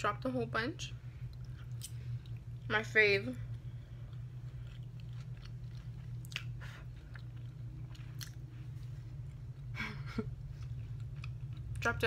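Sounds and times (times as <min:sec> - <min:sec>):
low hum: 0:00.0 - 0:12.0
person chewing food: 0:01.2 - 0:02.7, 0:03.4 - 0:09.7, 0:10.3 - 0:11.8.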